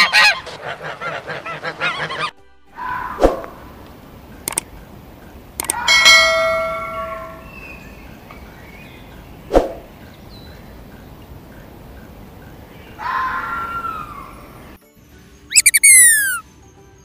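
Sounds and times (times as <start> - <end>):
mouse clicks: 4.5 - 4.7, 5.6 - 5.8
bright bell ding: 5.8 - 7.6.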